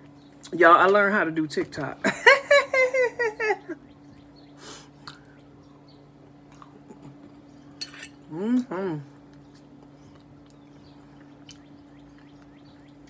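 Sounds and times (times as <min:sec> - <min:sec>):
faint low hum: 0:00.0 - 0:13.0
soft chewing: 0:04.9 - 0:13.0
small mouth clicks: 0:05.0 - 0:05.5.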